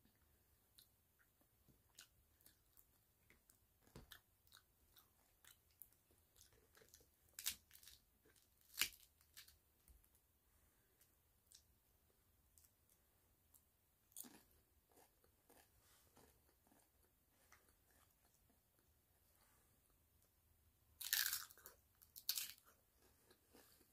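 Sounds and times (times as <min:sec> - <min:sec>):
crunching crisp shell: 0:21.0 - 0:23.4.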